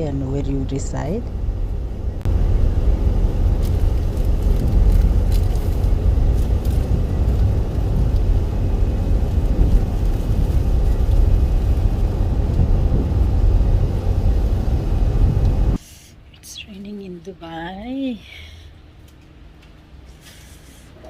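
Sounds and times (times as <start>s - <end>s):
car road noise rumble: 0.0s - 15.8s.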